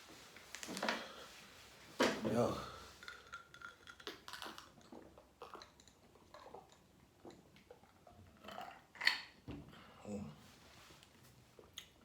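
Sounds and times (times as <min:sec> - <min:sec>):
chewing and mouth noises: 0:03.1 - 0:09.3.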